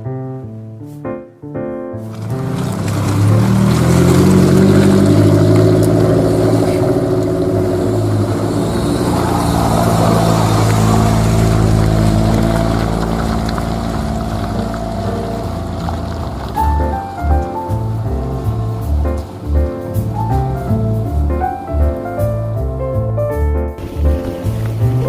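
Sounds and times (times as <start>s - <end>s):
tyre and road noise: 2.0s - 25.0s
car engine running: 2.1s - 21.7s.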